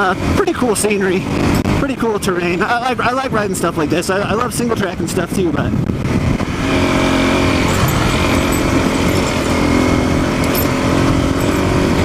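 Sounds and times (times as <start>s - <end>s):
motorcycle engine running: 0.0s - 3.2s, 5.9s - 12.0s.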